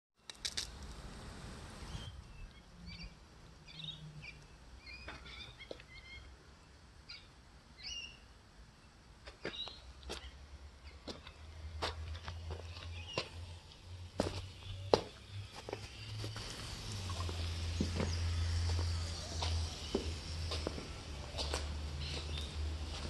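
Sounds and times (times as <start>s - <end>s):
small birds chirping: 1.9s - 6.3s, 7.1s - 8.3s, 9.3s - 11.4s, 12.2s - 13.6s, 14.2s - 23.0s.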